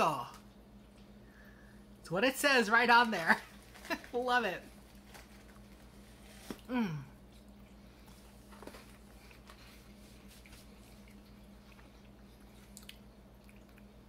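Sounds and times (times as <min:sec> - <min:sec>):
quiet chewing: 0:04.9 - 0:14.0
woman humming mmm: 0:06.6 - 0:07.2.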